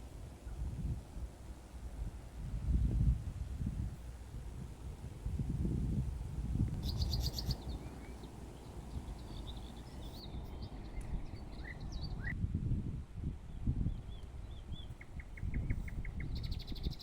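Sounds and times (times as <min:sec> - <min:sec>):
small birds chirping: 0:06.8 - 0:12.4, 0:13.9 - 0:17.0.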